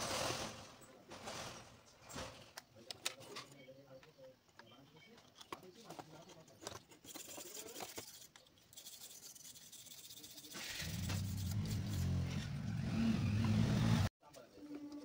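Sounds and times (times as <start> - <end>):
small parts clicking and scraping: 2.4 - 12.4.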